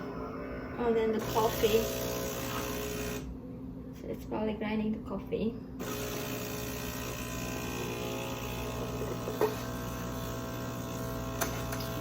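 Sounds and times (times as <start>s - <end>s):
espresso machine humming: 0.0s - 3.4s, 5.8s - 12.0s.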